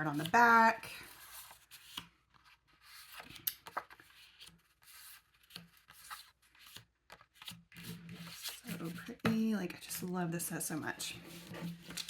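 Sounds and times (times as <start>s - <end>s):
paper rustling: 1.0s - 9.3s, 11.2s - 12.0s.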